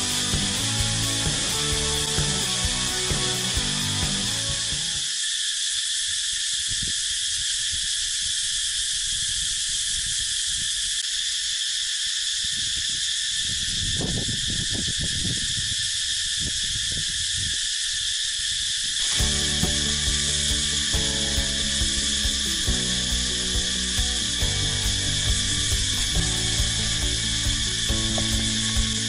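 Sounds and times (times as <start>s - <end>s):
cicadas buzzing: 0.0s - 29.0s
faint low rumbles: 19.1s - 29.0s.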